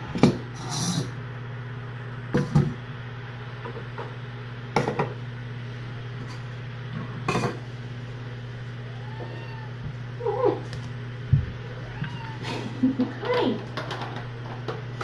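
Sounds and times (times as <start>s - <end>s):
steady low hum: 0.0s - 15.0s
objects knocking and clattering: 13.2s - 14.9s.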